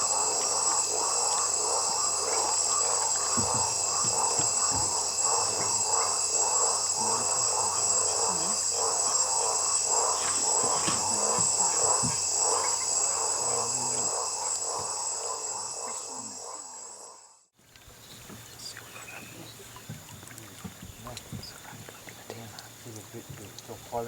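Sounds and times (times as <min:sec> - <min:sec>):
high-pitched insect buzzing: 0:00.0 - 0:17.4
pulsing insect chorus: 0:00.0 - 0:24.0.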